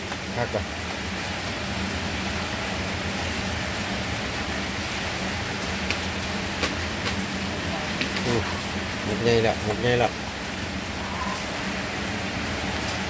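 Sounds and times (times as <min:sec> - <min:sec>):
rain falling steadily: 0:00.0 - 0:13.0.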